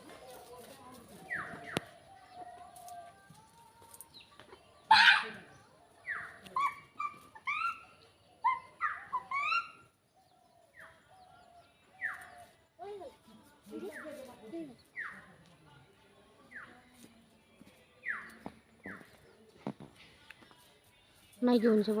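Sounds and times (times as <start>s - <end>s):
pitched animal calls: 6.5s - 9.9s.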